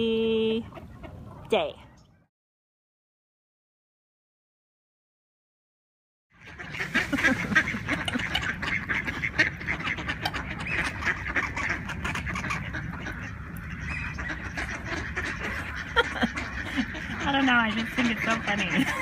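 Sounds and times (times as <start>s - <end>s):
ducks quacking and honking: 0.5s - 1.5s, 6.4s - 19.0s.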